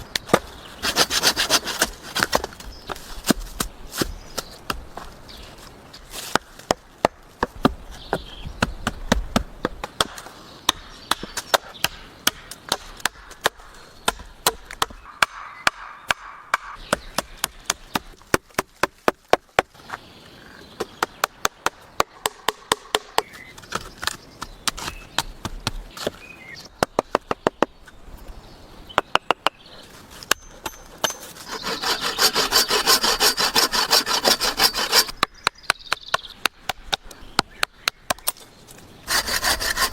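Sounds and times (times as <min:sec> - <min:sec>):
rapid scraping on wood: 0:00.3 - 0:05.1, 0:30.1 - 0:35.2, 0:39.1 - 0:39.9.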